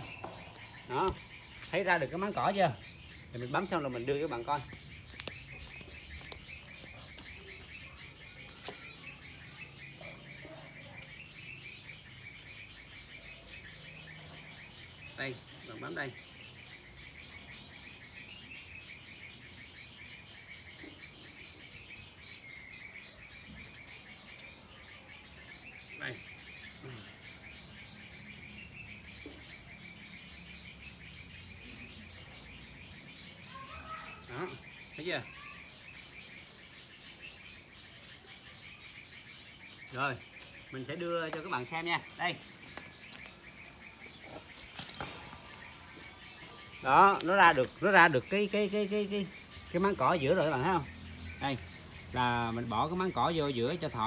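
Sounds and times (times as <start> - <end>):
small bird chirping: 0.0 - 54.0
metallic clicks of wire cage: 44.2 - 45.6.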